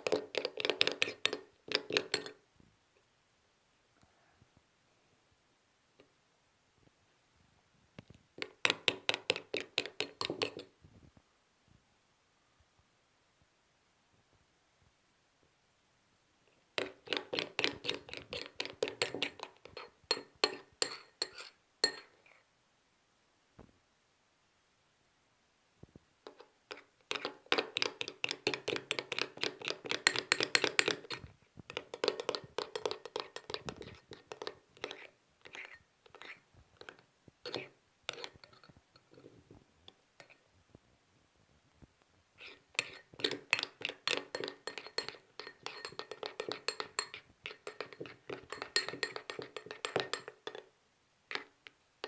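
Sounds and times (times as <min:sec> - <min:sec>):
hands scraping and clicking: 0:00.0 - 0:02.3, 0:08.0 - 0:10.7, 0:16.8 - 0:22.0, 0:26.3 - 0:39.3
utensil clinking against glass bowl: 0:00.0 - 0:02.4, 0:16.8 - 0:22.1, 0:27.1 - 0:31.2, 0:32.0 - 0:39.2, 0:42.4 - 0:50.6.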